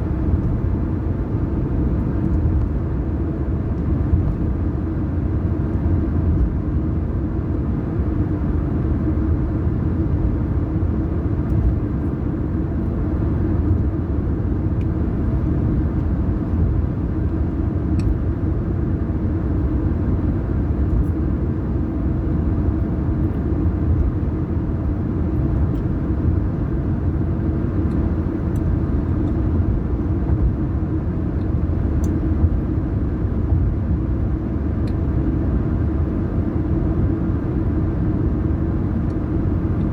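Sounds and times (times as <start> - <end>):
car tyres and engine rumble: 0.0 - 39.9.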